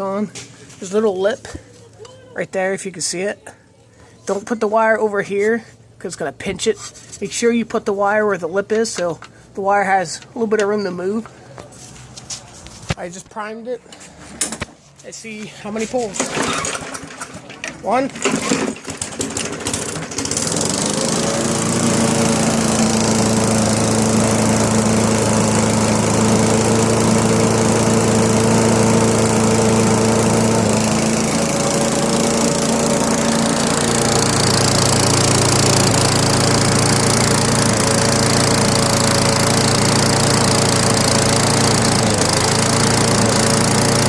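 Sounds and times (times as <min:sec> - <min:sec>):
small engine running steadily: 0:18.2 - 0:44.0.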